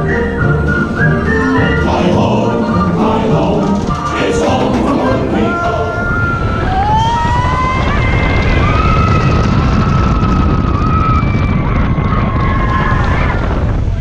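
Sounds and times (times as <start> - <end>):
roller coaster rumbling on track: 0.0 - 14.0
high-pitched wails: 0.4 - 7.8.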